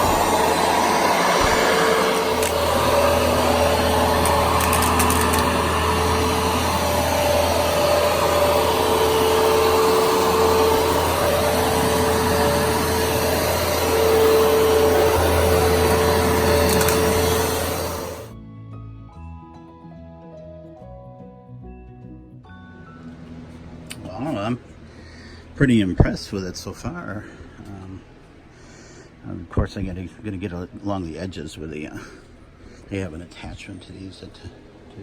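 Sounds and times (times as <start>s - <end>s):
carpet shampooer humming: 0.0s - 18.4s.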